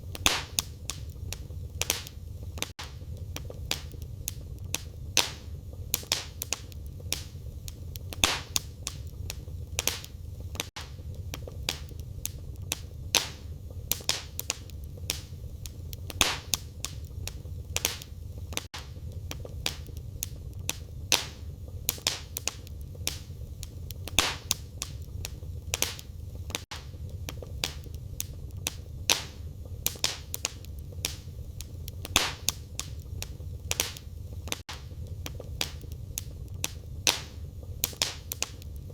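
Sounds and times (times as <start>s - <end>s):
fire crackling and popping: 0.0s - 38.9s
low rumble of fire: 0.0s - 38.9s.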